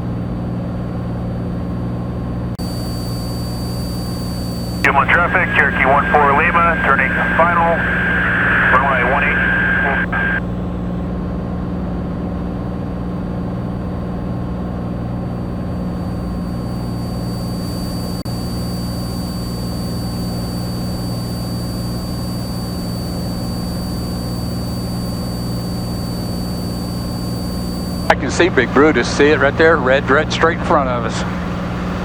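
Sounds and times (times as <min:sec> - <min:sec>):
airplane engine and propeller droning: 0:02.6 - 0:10.4, 0:15.6 - 0:32.0.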